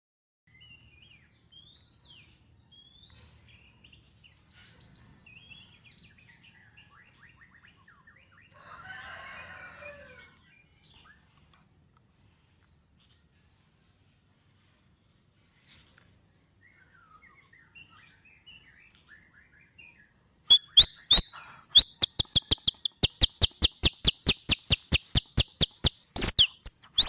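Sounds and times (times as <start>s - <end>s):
bird singing whistles and trills: 16.7s - 27.0s
harsh rasping bird chatter: 20.5s - 27.0s.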